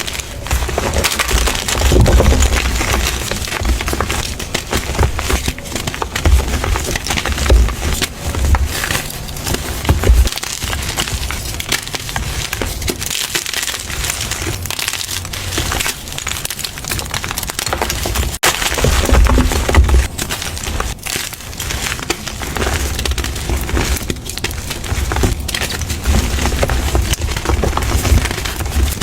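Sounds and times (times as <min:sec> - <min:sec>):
dull thuds: 0:00.0 - 0:10.4.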